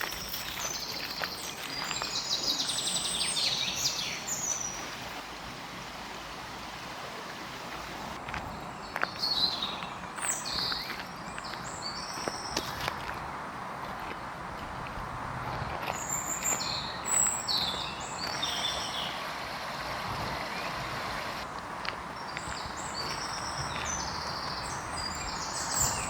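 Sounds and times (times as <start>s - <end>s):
birds singing: 0.0s - 5.1s, 7.4s - 12.9s, 15.9s - 26.0s
outdoor background noise: 0.0s - 26.0s.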